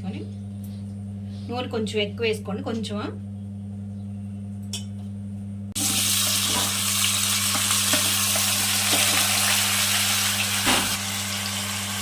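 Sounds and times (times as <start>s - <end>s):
low steady hum: 0.0s - 12.0s
food sizzling in oil: 5.8s - 12.0s.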